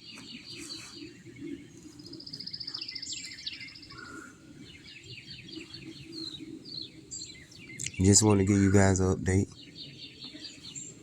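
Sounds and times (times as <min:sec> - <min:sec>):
bird trill: 0:00.0 - 0:11.0
birds chirping: 0:00.0 - 0:11.0.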